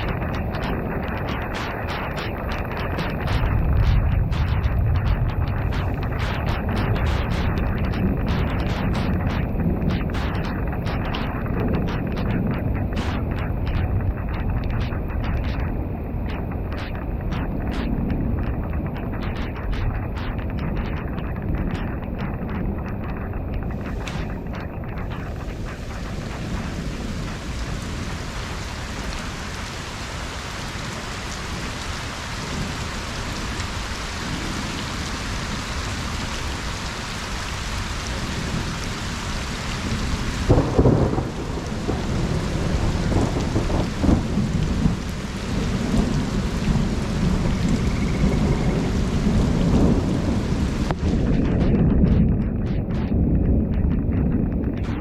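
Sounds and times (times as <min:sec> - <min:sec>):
rain falling on pond: 0:00.0 - 0:55.0
thunder rumbling: 0:00.0 - 0:55.0.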